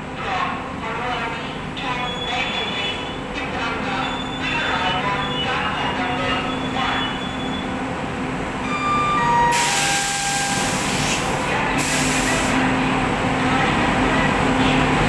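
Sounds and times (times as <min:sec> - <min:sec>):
electric locomotive humming: 0:00.0 - 0:15.0
loud hiss: 0:09.5 - 0:12.6.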